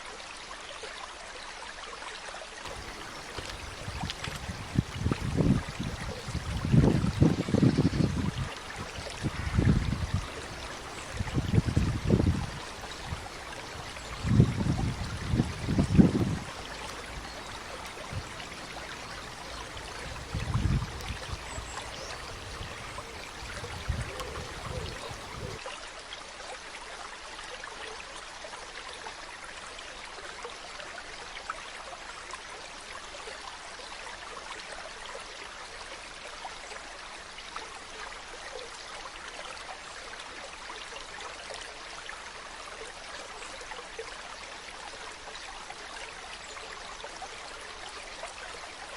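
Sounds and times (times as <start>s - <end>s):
flowing water rushing: 2.7s - 25.6s.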